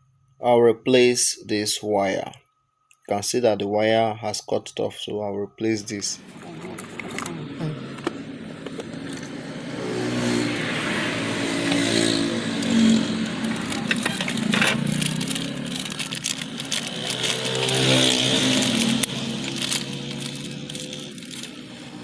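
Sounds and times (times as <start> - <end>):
engine running: 6.2 - 22.0
clicks and scrapes: 12.6 - 21.8.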